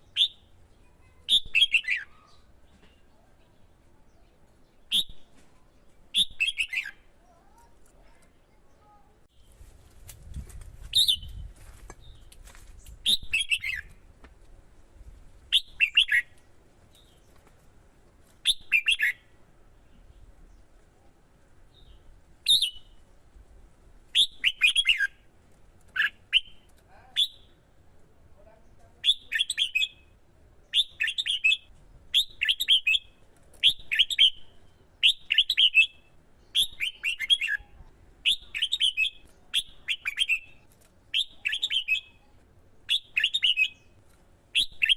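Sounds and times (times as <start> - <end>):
bird singing whistled phrases: 0.1 - 0.5, 1.3 - 2.5, 4.9 - 5.3, 6.1 - 7.0, 10.9 - 11.4, 13.0 - 13.9, 15.5 - 16.3, 18.4 - 19.2, 22.4 - 23.0, 24.1 - 25.2, 29.0 - 30.0, 30.7 - 42.2, 42.9 - 43.9, 44.6 - 44.9.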